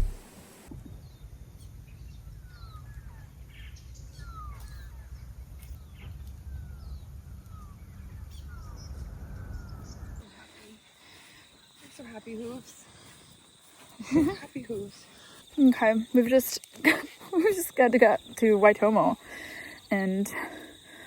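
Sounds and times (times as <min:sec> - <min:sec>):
steady low rumble: 0:00.0 - 0:00.6.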